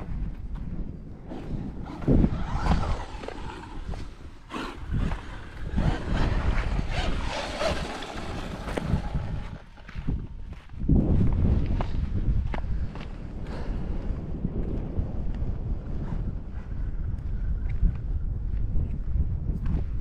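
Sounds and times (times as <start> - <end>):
wind rumbling on microphone: 0.0 - 20.0
electric motor whirring: 1.8 - 9.7
tyres crunching on dirt: 1.8 - 12.7.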